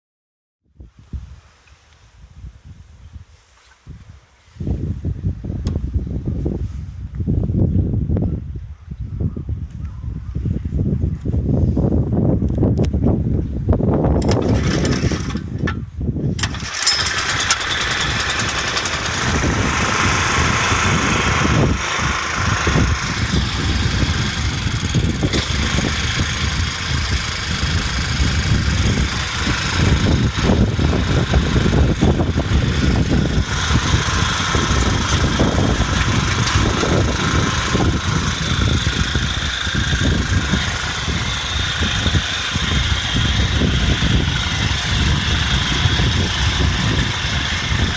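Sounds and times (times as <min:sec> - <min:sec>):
small engine starting and running: 0:14.2 - 0:47.9.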